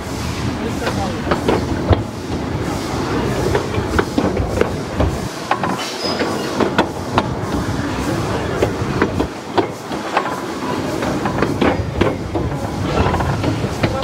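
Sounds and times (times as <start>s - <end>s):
steam train rumbling: 0.0s - 14.0s
wheels clacking on track joints: 3.1s - 14.0s.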